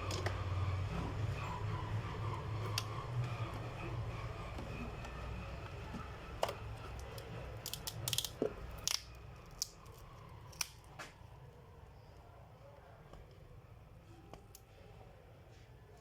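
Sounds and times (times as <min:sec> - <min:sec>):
plastic parts clicking and snapping: 0:05.9 - 0:11.2.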